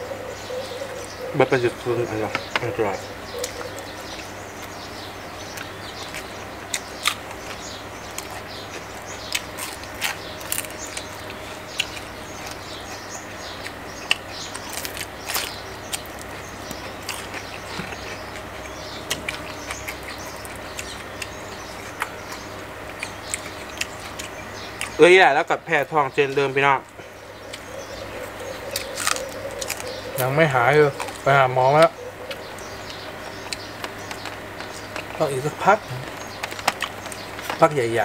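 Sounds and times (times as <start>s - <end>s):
faint birds chirping: 0.0s - 38.0s
chewing crispy fried fish: 5.5s - 25.0s, 27.4s - 37.8s.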